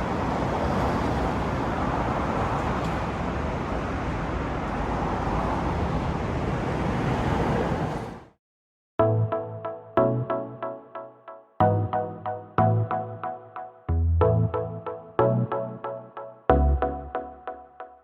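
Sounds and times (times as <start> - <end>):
street traffic noise: 0.0 - 8.4.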